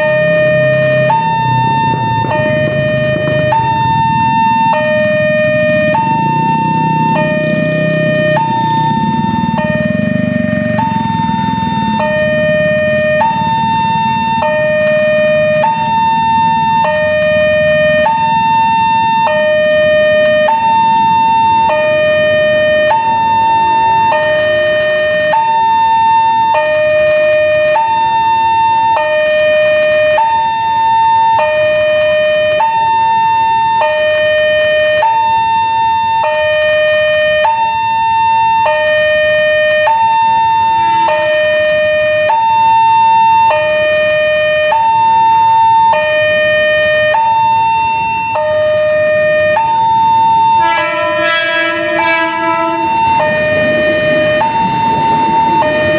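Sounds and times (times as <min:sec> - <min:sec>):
two-tone crossing alarm: 0:00.0 - 0:55.9
low rumble: 0:00.6 - 0:13.2, 0:50.8 - 0:55.9.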